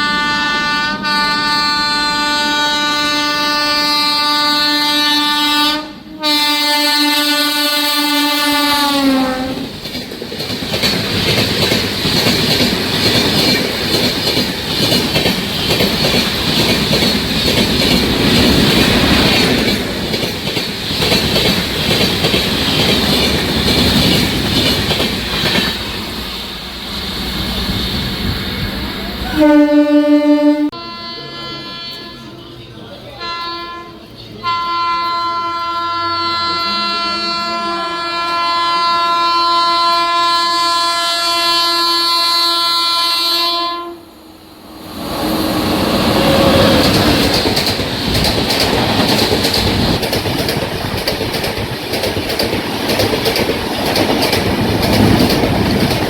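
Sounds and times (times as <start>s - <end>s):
locomotive horn: 0.0s - 9.7s, 29.2s - 32.6s, 33.2s - 44.2s, 45.8s - 47.4s
train wheels clattering over rail joints: 9.6s - 26.0s, 46.1s - 56.0s.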